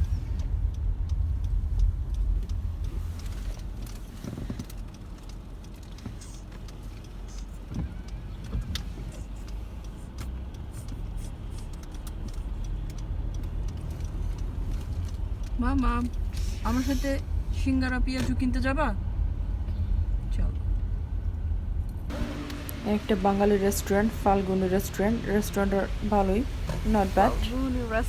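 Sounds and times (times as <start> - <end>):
car engine rumbling: 0.0 - 28.0
road noise: 0.0 - 28.0
small clicks and knocks: 0.4 - 16.5.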